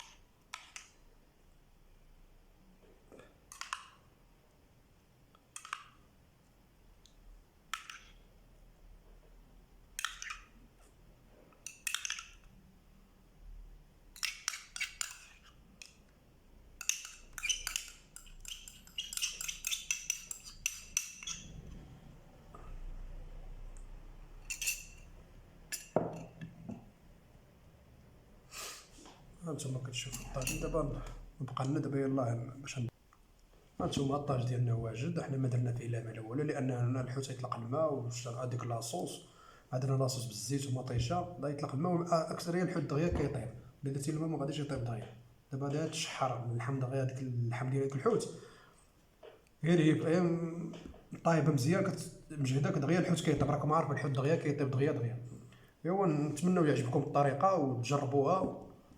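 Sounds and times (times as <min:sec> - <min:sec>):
utensils and dishes clinking: 0:16.8 - 0:21.6, 0:24.4 - 0:25.1, 0:30.0 - 0:31.0.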